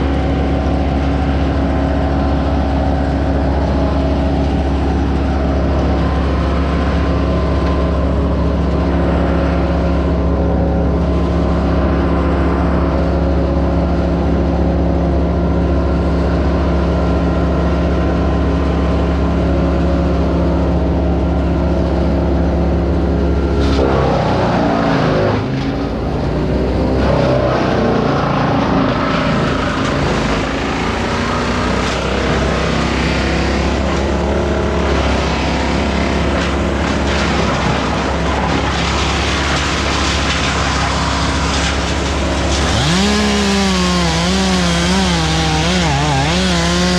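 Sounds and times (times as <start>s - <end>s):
machinery engine running: 0.0s - 46.9s.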